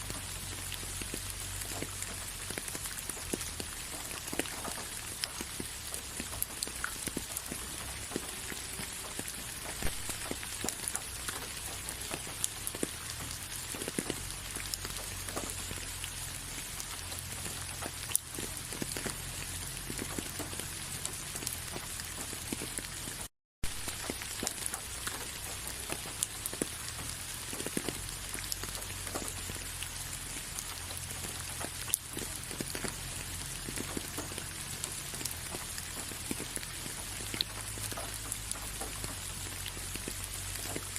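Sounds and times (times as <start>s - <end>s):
rain falling: 0.0s - 40.9s
raindrops clicking on a surface: 0.0s - 40.9s.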